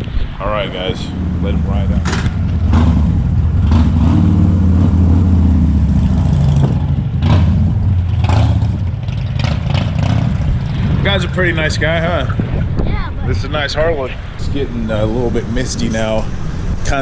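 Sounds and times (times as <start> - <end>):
motorcycle engine revving: 0.6 - 12.8.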